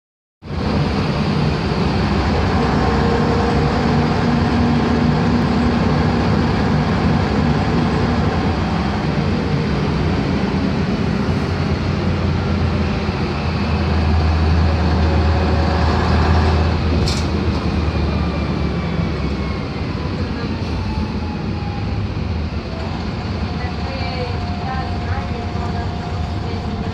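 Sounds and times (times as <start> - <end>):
bus diesel engine drone: 0.4 - 26.9.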